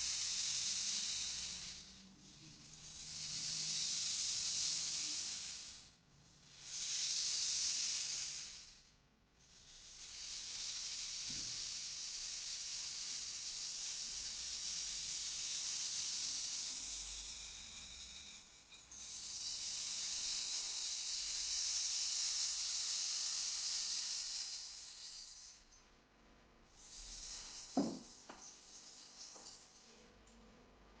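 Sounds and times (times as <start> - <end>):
rainstick pellets trickling: 26.9 - 30.0.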